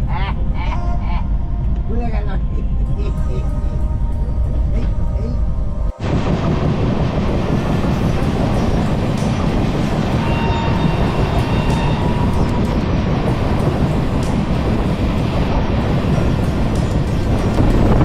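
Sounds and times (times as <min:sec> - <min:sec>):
faint high whine: 0:06.0 - 0:18.0
train wheels rumbling on rails: 0:06.1 - 0:18.0.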